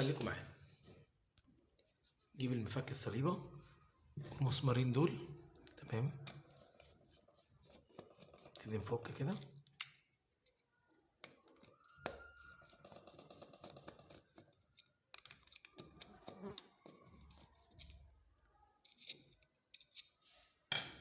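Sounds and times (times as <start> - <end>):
screwdriver clicking and scraping: 5.6 - 8.8, 9.6 - 10.6, 11.2 - 18.1, 18.8 - 20.3.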